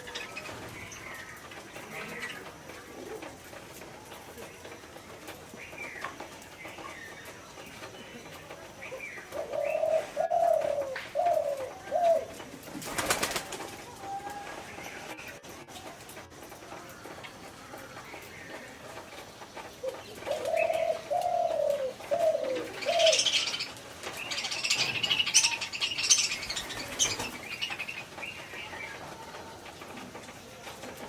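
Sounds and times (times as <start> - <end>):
scratchy bird sound: 0.0 - 31.0
pigeon cooing: 9.2 - 14.7, 19.8 - 23.9.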